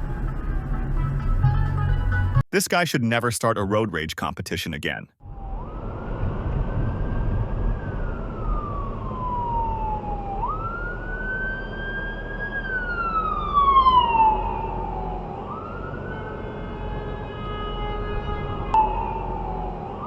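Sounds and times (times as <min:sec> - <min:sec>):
road and engine rumble: 0:00.0 - 0:02.4, 0:05.3 - 0:20.0
emergency siren wailing: 0:05.2 - 0:20.0.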